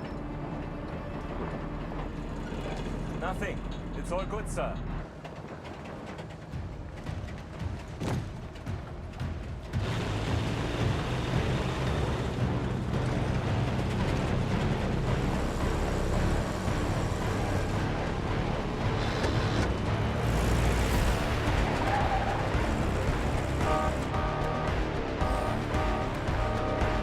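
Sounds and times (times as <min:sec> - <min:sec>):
truck engine running: 0:00.0 - 0:27.0
deep rumble: 0:08.6 - 0:27.0
orchestral music: 0:09.8 - 0:27.0.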